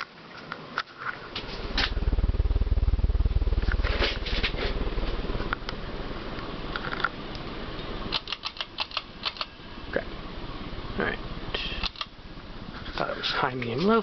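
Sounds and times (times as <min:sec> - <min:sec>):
ceiling fan air buffeting: 0:00.0 - 0:14.0
sharp clicks and light rattles: 0:06.4 - 0:09.6, 0:11.6 - 0:12.2.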